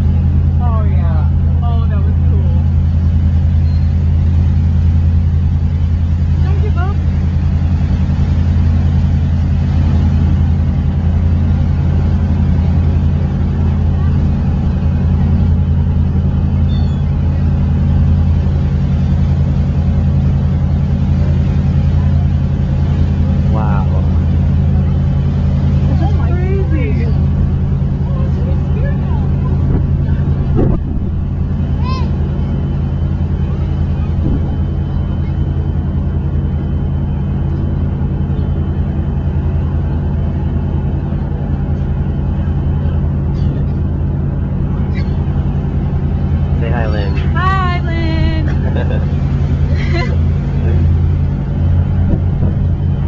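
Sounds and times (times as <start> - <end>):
low engine hum: 0.0 - 53.0
faint high chirp: 3.6 - 4.0, 16.6 - 17.2.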